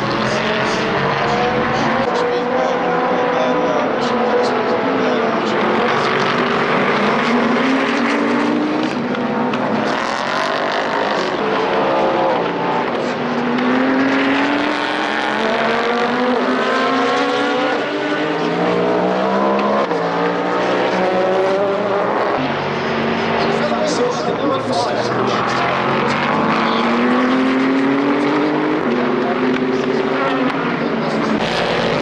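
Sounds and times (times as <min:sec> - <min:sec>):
race car engines at full throttle: 0:00.0 - 0:32.0.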